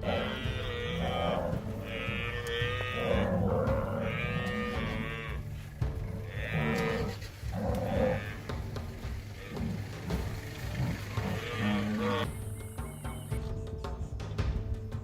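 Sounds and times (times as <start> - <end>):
buffalo bawling: 0.0 - 13.3
low background music: 0.0 - 15.0.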